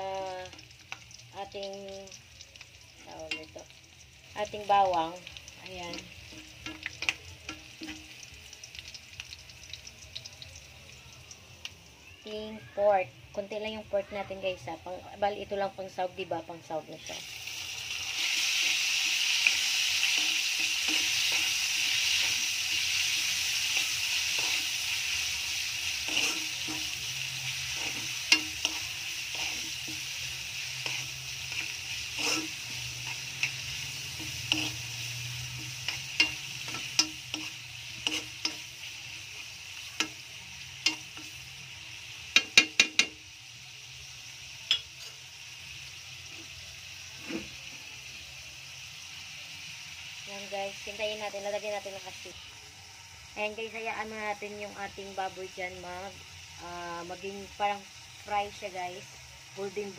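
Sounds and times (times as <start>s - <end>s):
pork sizzling in oil: 0.0s - 59.9s
spoon tapping and scraping pan: 6.3s - 8.2s, 27.7s - 30.0s, 30.8s - 34.9s, 35.5s - 38.7s, 40.8s - 41.4s, 42.3s - 43.2s, 44.7s - 45.0s.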